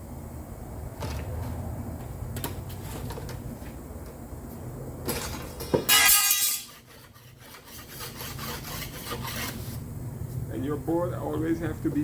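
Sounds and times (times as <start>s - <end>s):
low steady hum: 0.0s - 12.0s
loud scrape: 5.2s - 9.8s.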